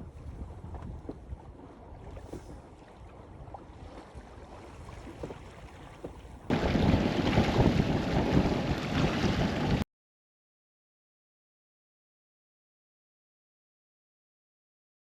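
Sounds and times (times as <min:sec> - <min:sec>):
water noise: 0:00.0 - 0:09.8
wind: 0:00.0 - 0:09.8
wind buffeting microphone: 0:00.0 - 0:09.8.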